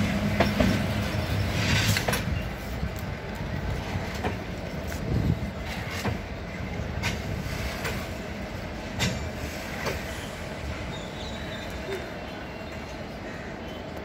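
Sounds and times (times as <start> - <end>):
wheels clicking over rails: 0.0 - 8.2
train rumbling along track: 0.0 - 14.0.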